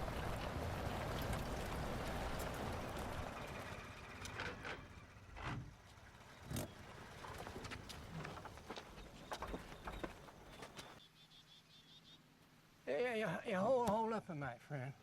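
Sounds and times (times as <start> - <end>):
motor vehicle running: 0.0 - 11.0.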